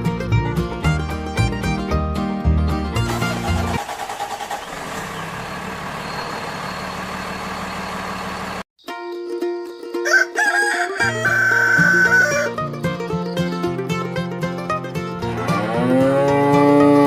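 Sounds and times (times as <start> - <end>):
rooster crowing: 10.0 - 12.6.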